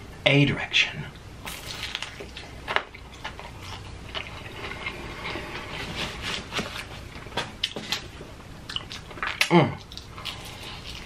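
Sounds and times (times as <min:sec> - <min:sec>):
crunching fried chicken: 0:01.4 - 0:05.4, 0:08.7 - 0:11.0.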